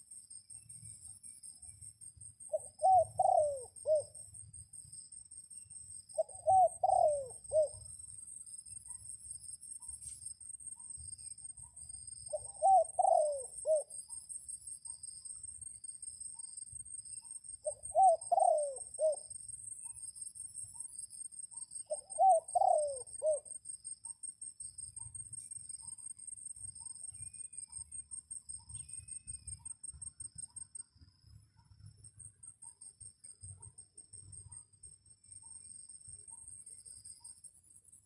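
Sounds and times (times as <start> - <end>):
dove cooing: 2.5 - 4.2, 6.2 - 7.8, 12.3 - 14.0, 17.6 - 19.3, 21.9 - 23.5.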